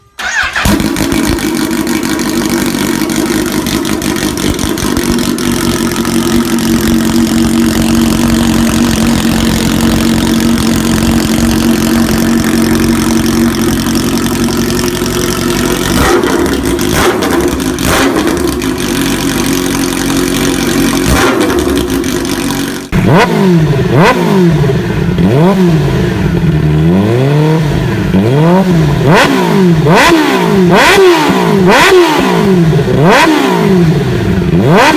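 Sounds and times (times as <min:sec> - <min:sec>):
motorcycle engine revving blips: 0:00.0 - 0:05.2, 0:15.4 - 0:19.2, 0:19.8 - 0:34.9
motorcycle engine at high revs: 0:00.2 - 0:34.9.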